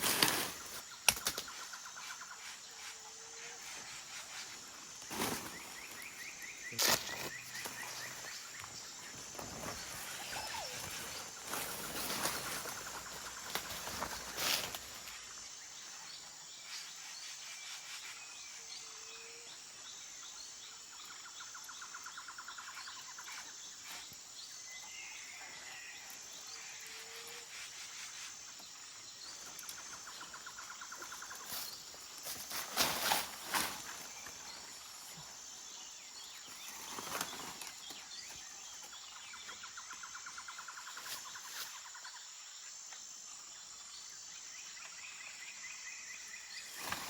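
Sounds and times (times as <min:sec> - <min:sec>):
high insect drone: 0:00.0 - 0:47.0
bird chirps: 0:05.2 - 0:14.5.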